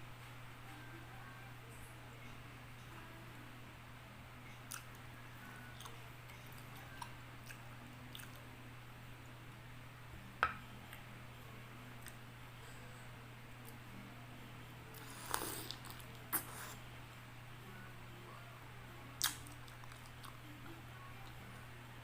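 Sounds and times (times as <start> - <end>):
steady low hum: 0.0 - 22.0
wet chewing clicks: 5.8 - 8.4, 19.2 - 20.4.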